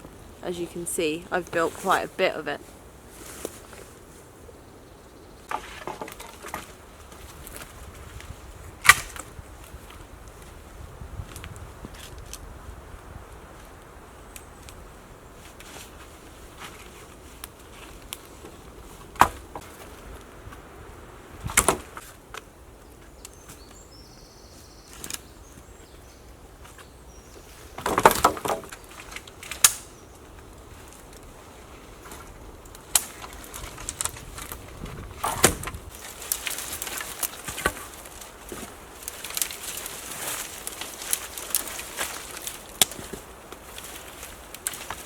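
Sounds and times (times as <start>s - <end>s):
crackling and rustling: 0.0s - 4.4s, 5.4s - 45.0s
wooden poles knocking: 27.8s - 28.8s.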